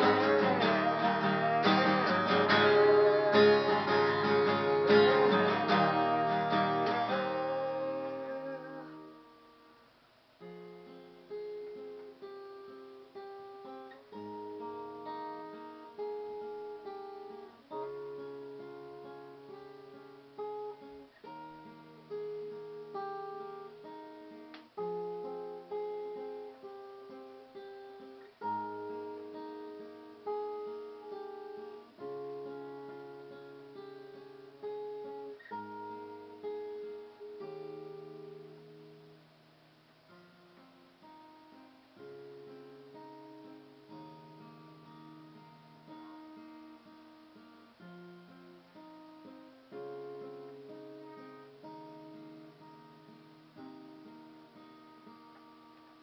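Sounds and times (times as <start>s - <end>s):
acoustic guitar chords: 0.0s - 56.0s.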